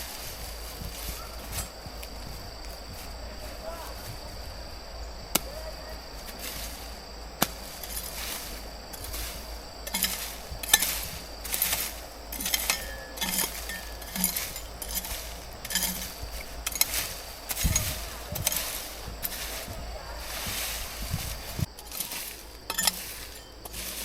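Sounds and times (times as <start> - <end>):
faint steady high tone: 12.3 - 23.6.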